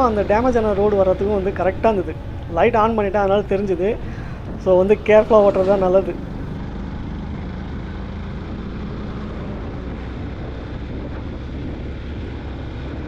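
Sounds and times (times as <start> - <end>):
wind rushing over microphone: 0.0 - 6.6
motorcycle engine and road rumble: 0.0 - 13.0.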